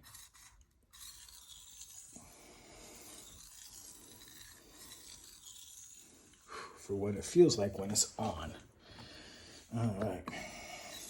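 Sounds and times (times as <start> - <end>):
knife scraping on whetstone: 0.0 - 6.6, 10.3 - 11.0.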